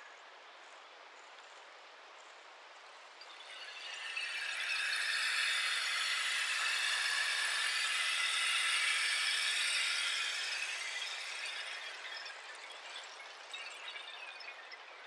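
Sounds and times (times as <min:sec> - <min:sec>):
rainstick rattling: 0:03.3 - 0:14.4.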